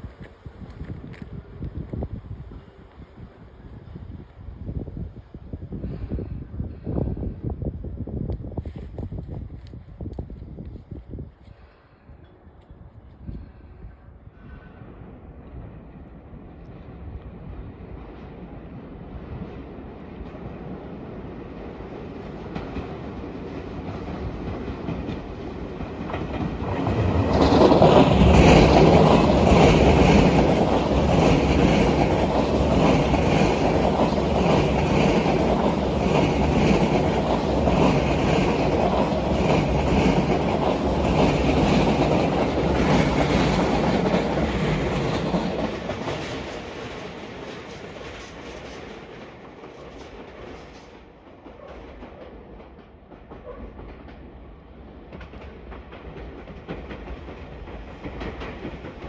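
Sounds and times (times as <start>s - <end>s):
electric train rumbling by: 0.0s - 59.0s
wheels clicking over rail joints: 22.4s - 59.0s.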